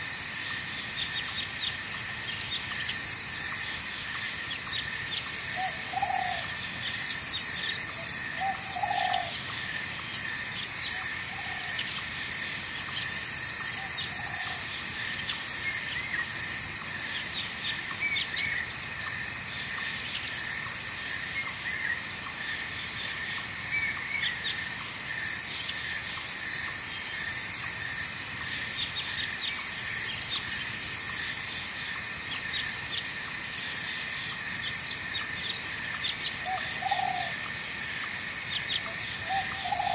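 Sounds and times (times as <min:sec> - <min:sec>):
crickets and insects chorus: 0:00.0 - 0:39.9
frog calls: 0:04.4 - 0:12.1, 0:34.1 - 0:39.9.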